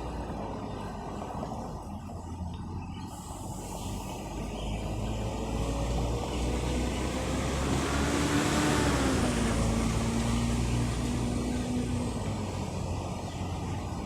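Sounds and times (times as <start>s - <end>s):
vehicle driving past: 3.4s - 14.0s.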